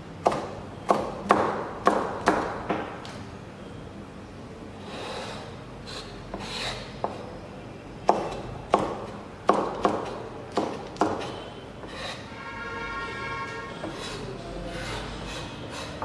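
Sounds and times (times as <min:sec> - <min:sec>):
knife scraping cutting board: 0:04.9 - 0:07.3, 0:11.2 - 0:12.4, 0:13.5 - 0:16.0
knife chopping on wooden board: 0:08.0 - 0:12.2.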